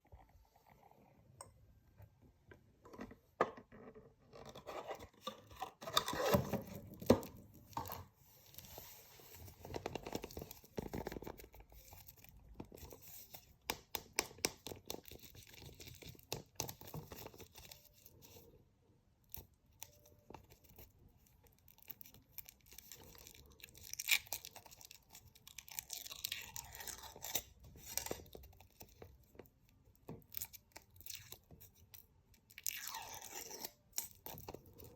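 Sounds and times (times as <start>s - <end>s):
candy wrapper crinkling and tearing: 19.3s - 34.9s.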